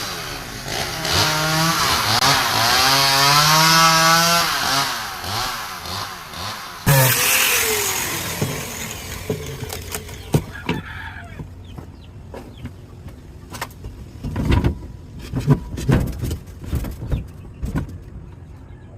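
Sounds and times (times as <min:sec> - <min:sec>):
angle grinder winding down: 0:00.0 - 0:10.4.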